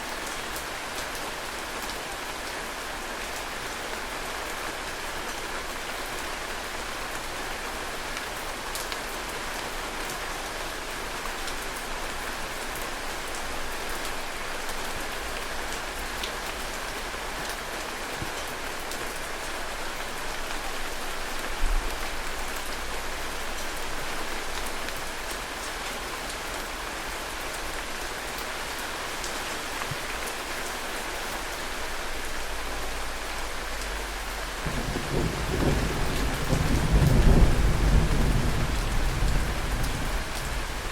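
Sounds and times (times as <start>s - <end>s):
heavy rain hissing: 11.9s - 40.9s.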